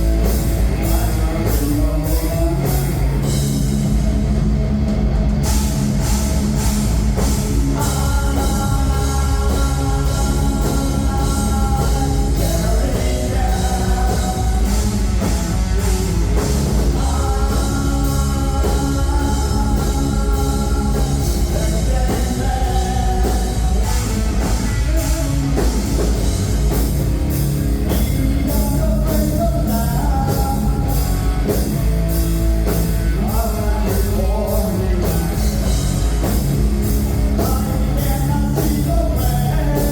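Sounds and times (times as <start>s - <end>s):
bass guitar: 0.0s - 39.9s
distorted electric guitars: 0.0s - 39.9s
drum kit: 0.0s - 39.9s
person singing long notes: 16.8s - 25.7s.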